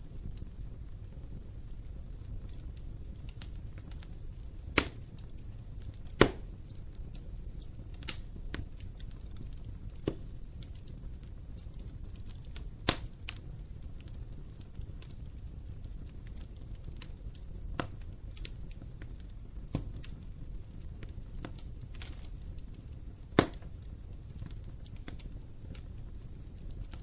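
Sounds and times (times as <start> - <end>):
burning logs popping: 0.0 - 27.0
fireplace flames crackling: 0.0 - 27.0.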